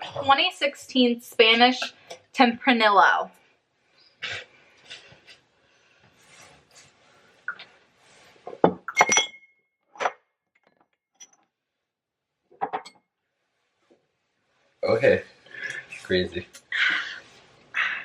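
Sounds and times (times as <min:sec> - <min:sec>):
glass clinking: 0:08.6 - 0:10.2, 0:12.6 - 0:13.0.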